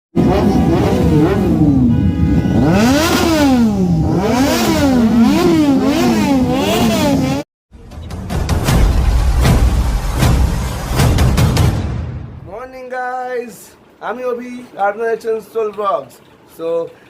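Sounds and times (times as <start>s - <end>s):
motorcycle engine revving: 0.2s - 7.5s
music: 7.7s - 12.4s.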